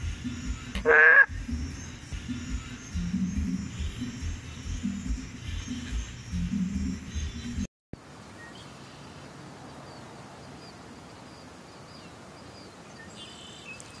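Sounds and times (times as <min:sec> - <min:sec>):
background music: 0:00.0 - 0:07.7
outdoor ambient hiss: 0:00.0 - 0:14.0.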